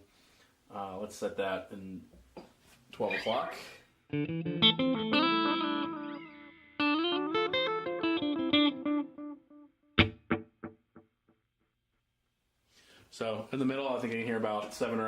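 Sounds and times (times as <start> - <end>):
electric guitar with delay echoes: 4.1 - 10.8.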